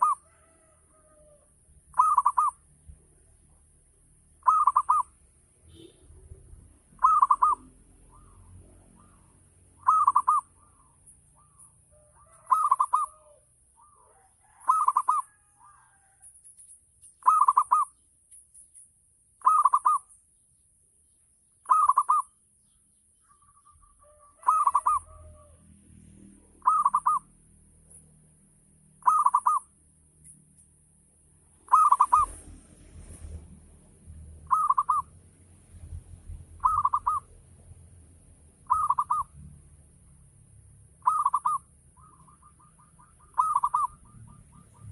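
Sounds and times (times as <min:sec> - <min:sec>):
zebra dove cooing: 0:00.0 - 0:02.6, 0:04.4 - 0:05.2, 0:06.9 - 0:16.2, 0:17.2 - 0:18.0, 0:19.4 - 0:20.1, 0:21.6 - 0:22.3, 0:23.2 - 0:25.6, 0:26.6 - 0:27.3, 0:29.0 - 0:29.7, 0:31.6 - 0:32.6, 0:34.4 - 0:35.2, 0:36.6 - 0:37.4, 0:38.6 - 0:39.4, 0:41.0 - 0:44.9.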